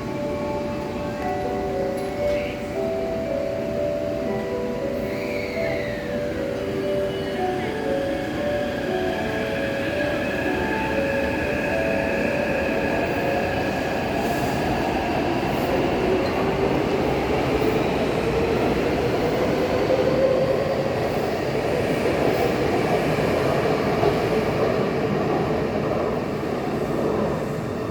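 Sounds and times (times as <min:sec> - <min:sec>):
subway train rail rumble: 0:00.0 - 0:27.9
train whine rising in pitch: 0:04.3 - 0:22.4.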